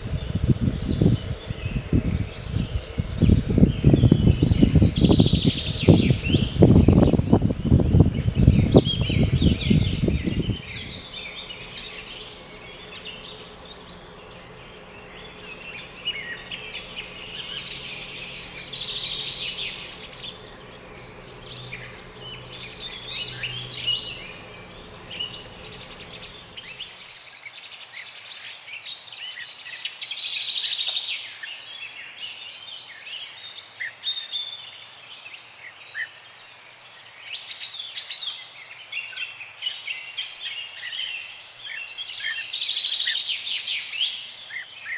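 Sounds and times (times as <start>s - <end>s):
low steady hum: 0.0s - 27.0s
birds chirping and singing: 0.0s - 44.9s.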